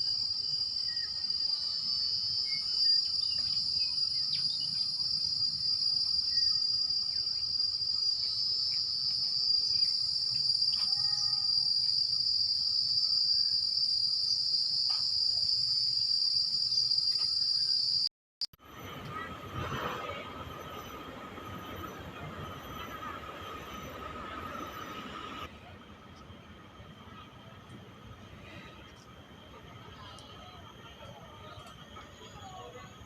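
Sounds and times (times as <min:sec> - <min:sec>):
high-pitched insect chorus: 0:00.0 - 0:18.1.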